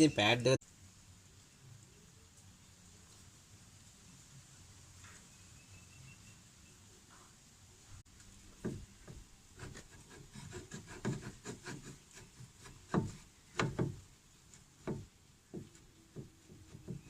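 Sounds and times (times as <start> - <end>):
brake pad scraped by hand: 8.6 - 14.0, 14.6 - 17.0.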